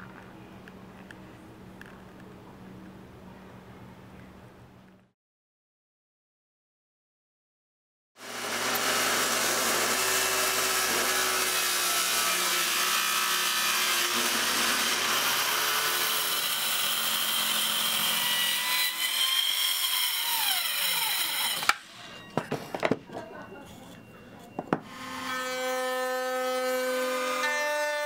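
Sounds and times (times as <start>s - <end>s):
power saw cutting wood: 8.2s - 22.0s, 24.8s - 28.0s
saw winding down whine: 8.2s - 22.3s.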